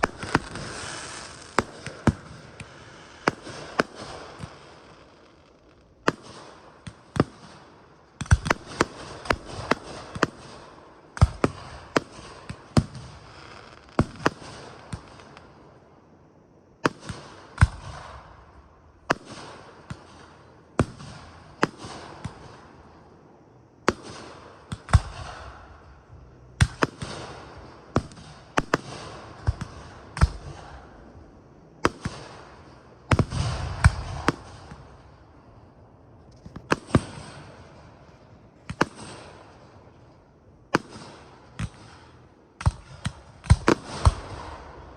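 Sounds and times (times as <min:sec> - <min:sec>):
aerial fireworks booming: 0:00.0 - 0:04.8, 0:26.6 - 0:35.3, 0:40.7 - 0:44.9
fireworks crackling and hissing: 0:00.0 - 0:44.9.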